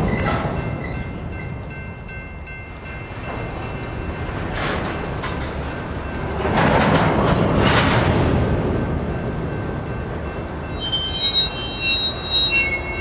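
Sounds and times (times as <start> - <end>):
train cars clattering: 0.0 - 13.0
train wheels rumbling on rails: 0.0 - 13.0
thin high wheel squeal: 10.8 - 13.0.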